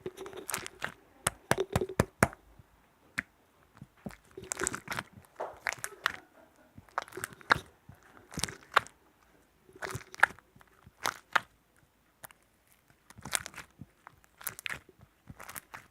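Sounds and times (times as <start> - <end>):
close crunching crackling clicks: 3.2 - 6.2, 6.8 - 9.0, 12.2 - 15.9.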